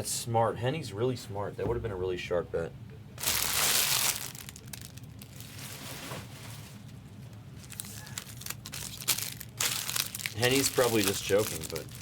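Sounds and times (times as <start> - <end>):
plastic wrapping crinkling: 3.2 - 12.0.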